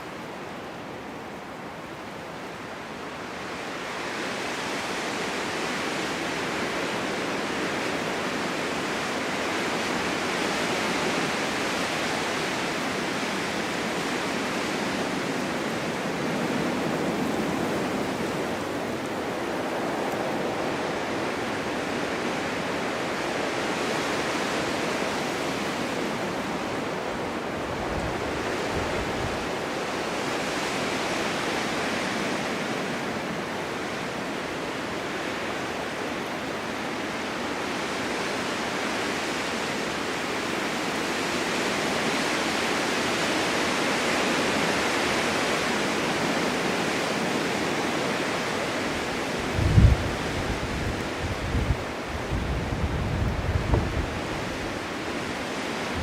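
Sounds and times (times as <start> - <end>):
strong wind blowing in gusts: 0.0 - 56.0
wind buffeting microphone: 13.2 - 30.4, 48.2 - 56.0.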